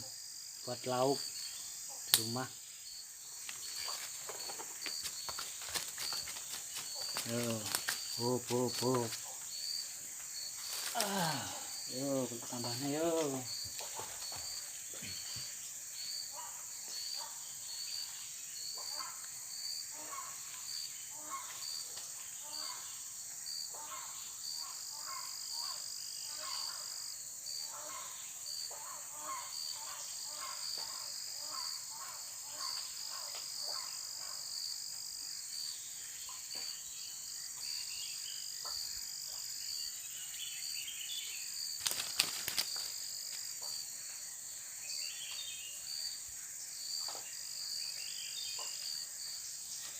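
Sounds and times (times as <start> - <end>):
insects buzzing: 0.0 - 49.9
pulsing high insect chirp: 0.0 - 49.9.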